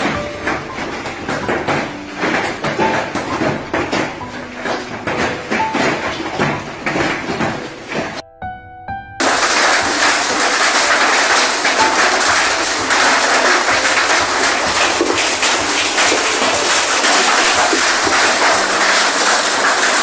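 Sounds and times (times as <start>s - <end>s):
hail and rain pelting surfaces: 0.0s - 8.2s, 9.2s - 20.0s
music notes: 0.0s - 20.0s.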